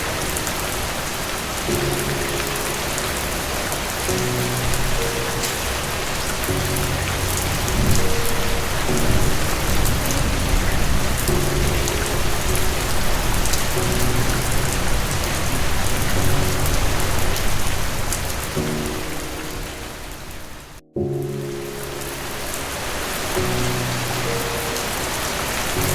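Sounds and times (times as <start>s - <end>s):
heavy rain: 0.0s - 25.9s
soft low piano notes: 0.0s - 25.9s
low roll of thunder: 6.9s - 18.6s.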